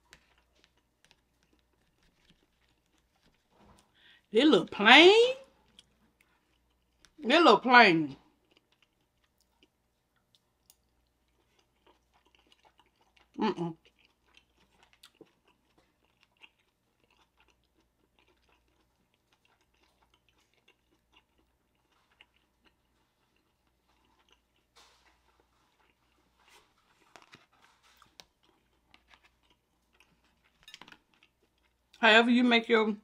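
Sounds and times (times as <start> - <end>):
quiet chewing clicks: 0.0 - 4.2, 5.6 - 7.2, 8.3 - 32.0.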